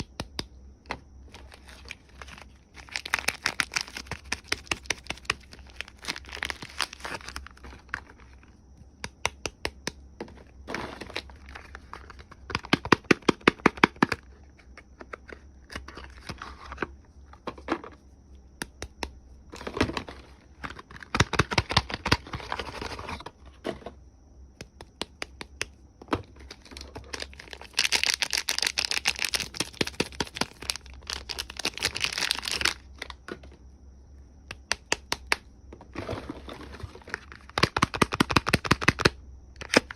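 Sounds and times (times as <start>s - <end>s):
wrappers crinkling and tearing: 1.4s - 8.1s, 26.6s - 32.8s.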